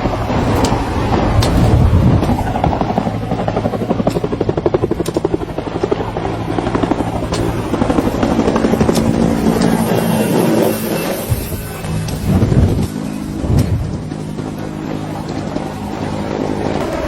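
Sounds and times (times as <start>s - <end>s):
helicopter rotor chopping: 0.0s - 17.0s.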